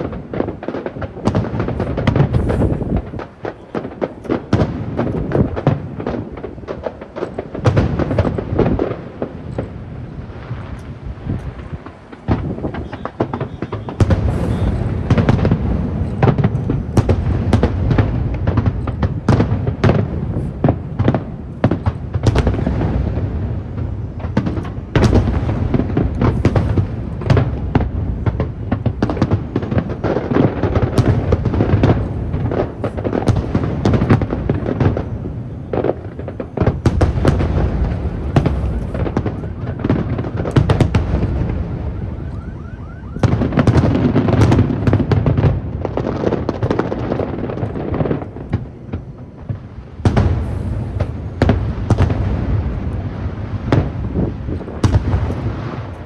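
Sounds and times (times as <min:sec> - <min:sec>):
firework shell bursts and bangs: 0:00.0 - 0:09.9, 0:10.6 - 0:41.6.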